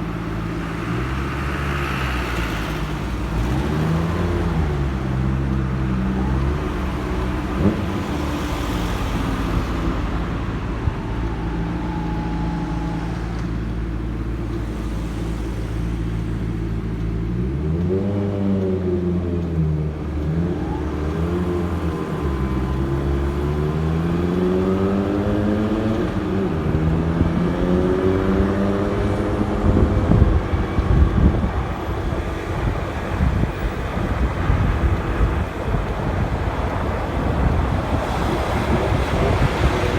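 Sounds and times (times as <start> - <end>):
wind buffeting microphone: 20.6 - 39.9.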